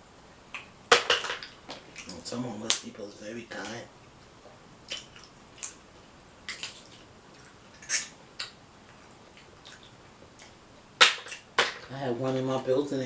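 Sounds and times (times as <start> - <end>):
wet eating clicks and snaps: 4.8 - 5.8, 6.4 - 11.9.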